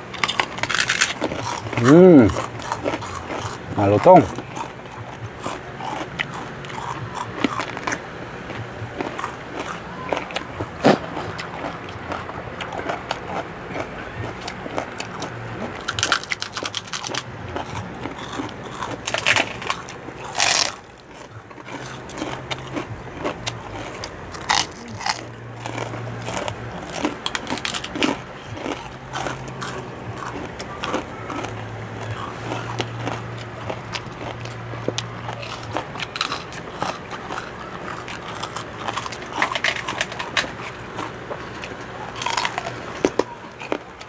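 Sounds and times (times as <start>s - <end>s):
crunchy food being chewed: 0.0s - 44.0s.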